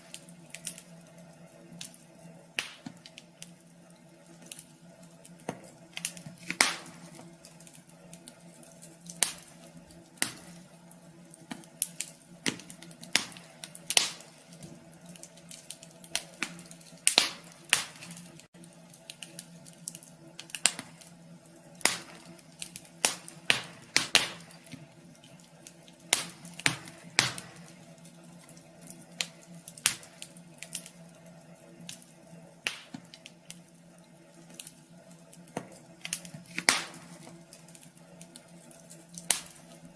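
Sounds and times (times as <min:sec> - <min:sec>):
steady low hum: 0:00.0 - 0:39.9
wood fire crackling: 0:00.0 - 0:39.9.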